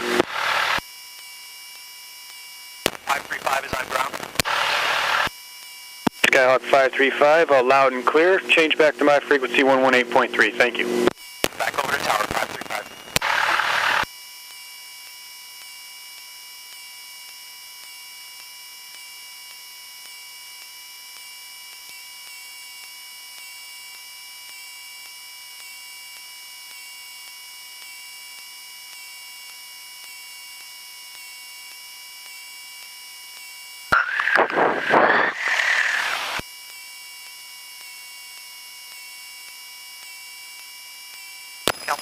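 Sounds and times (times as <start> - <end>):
electrical hum with high tones: 0.0 - 42.0
person speaking: 41.8 - 42.0.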